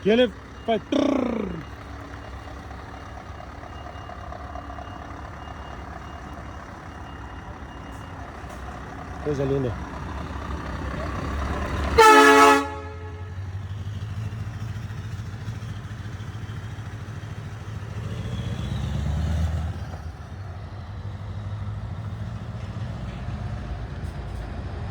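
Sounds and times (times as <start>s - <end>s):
truck engine running: 0.0s - 24.9s
loud horn blast: 12.0s - 13.6s.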